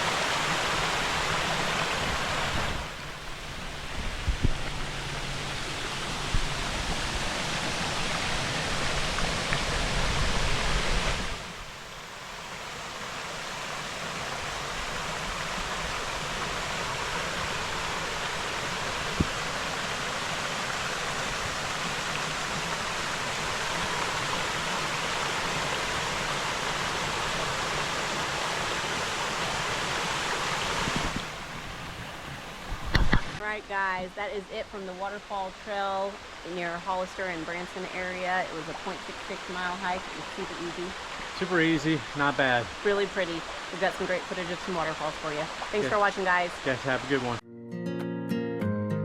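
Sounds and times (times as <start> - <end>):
waterfall rushing: 0.0 - 47.4
wind rumble on microphone: 1.6 - 11.5, 17.3 - 19.5, 30.6 - 33.4.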